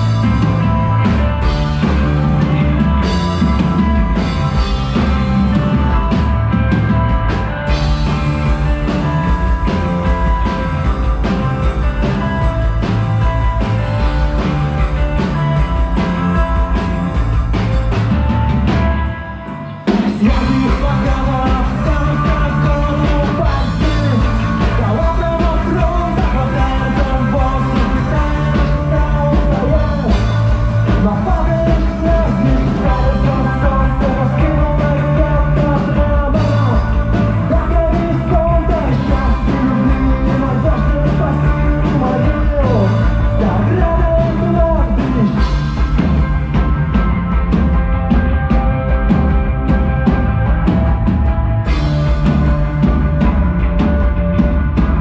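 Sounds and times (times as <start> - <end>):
live rock band playing: 0.0 - 55.0
person singing: 19.9 - 45.6.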